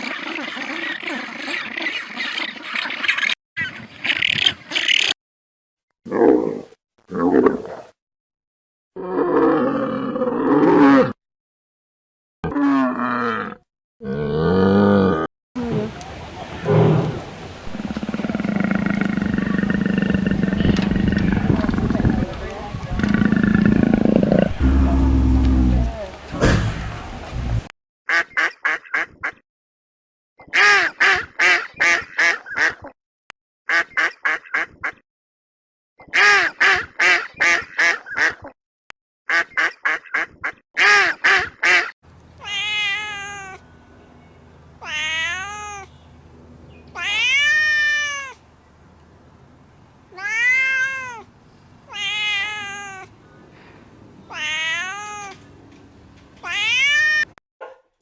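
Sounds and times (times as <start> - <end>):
animal rapid short calls: 42.4 - 43.7, 44.8 - 45.9, 47.0 - 48.4, 50.1 - 51.3, 51.9 - 55.6
cat meowing: 42.4 - 43.7, 44.8 - 46.0, 46.9 - 48.4, 50.1 - 51.3, 51.9 - 53.2, 54.2 - 55.6, 56.4 - 57.4.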